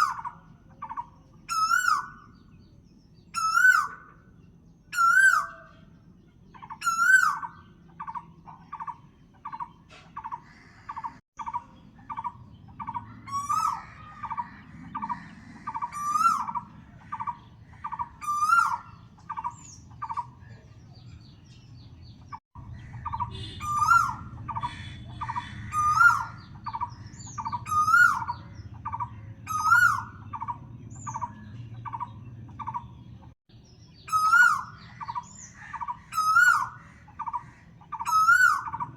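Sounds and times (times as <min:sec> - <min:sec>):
bird warbling call: 0:00.0 - 0:02.5, 0:03.3 - 0:04.3, 0:04.9 - 0:05.9, 0:06.5 - 0:20.6, 0:22.3 - 0:38.9.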